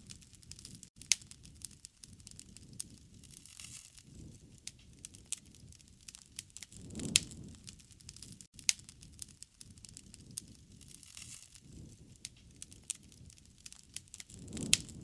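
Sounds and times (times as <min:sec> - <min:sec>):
campfire wood crackling: 0:00.0 - 0:15.0
low rush of flame: 0:00.0 - 0:15.0.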